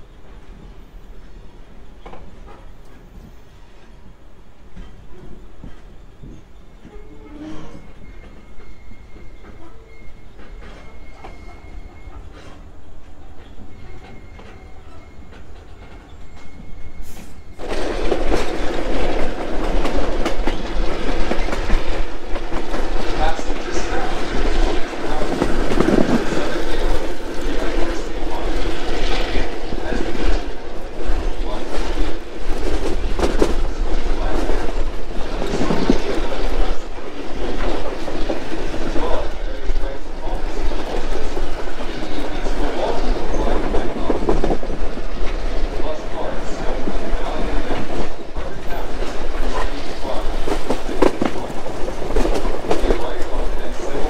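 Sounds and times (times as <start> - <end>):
train rumbling on rails: 0.0 - 54.0
thin squeal: 6.4 - 12.7, 13.7 - 17.6.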